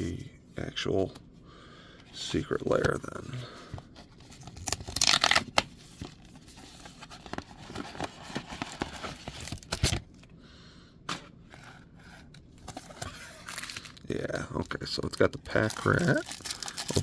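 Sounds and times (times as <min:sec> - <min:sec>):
cards and packaging crinkling: 0:04.0 - 0:10.2, 0:12.6 - 0:17.0.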